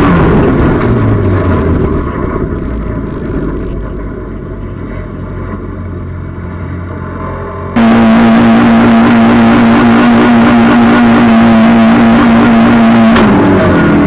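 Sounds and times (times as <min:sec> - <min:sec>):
race car engine from inside cabin: 0:00.0 - 0:04.4, 0:07.7 - 0:14.0.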